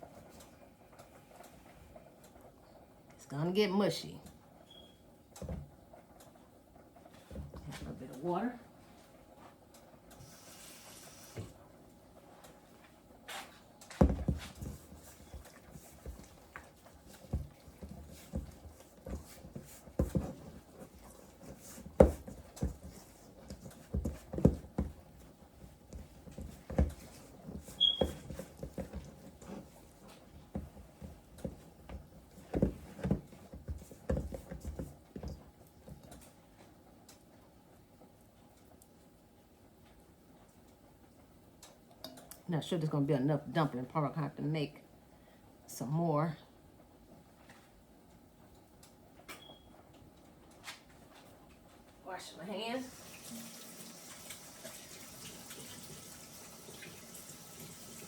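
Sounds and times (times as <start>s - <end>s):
dough squelching in a bowl: 13.2s - 36.5s.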